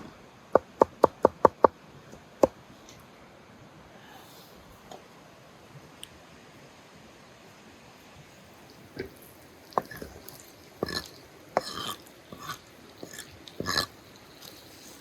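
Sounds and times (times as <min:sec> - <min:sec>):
crunching and chewing food: 0:08.5 - 0:15.0.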